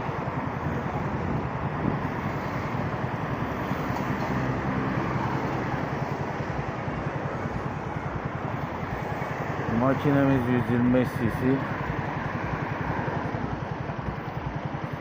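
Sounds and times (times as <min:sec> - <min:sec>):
wind noise on microphone: 0:00.0 - 0:05.8
traffic: 0:00.0 - 0:15.0
motorcycle engine running: 0:04.7 - 0:11.0, 0:11.6 - 0:15.0.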